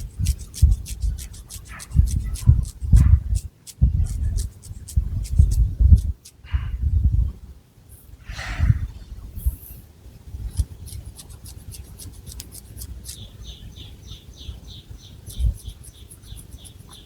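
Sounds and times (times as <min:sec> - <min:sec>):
fingernails scratching hair: 0:00.0 - 0:06.4, 0:10.5 - 0:13.2, 0:15.3 - 0:17.0.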